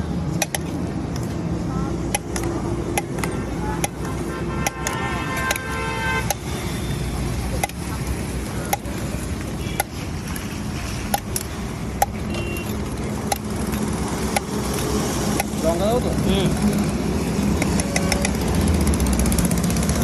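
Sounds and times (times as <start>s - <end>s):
street traffic: 0.0s - 20.0s
sharp clicks: 17.4s - 18.6s.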